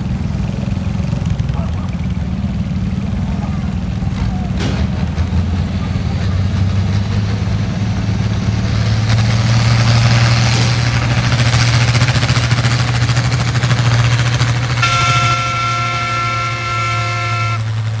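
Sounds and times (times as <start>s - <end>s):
tractor engine at full throttle: 0.0s - 18.0s
horn sounding: 14.8s - 18.0s.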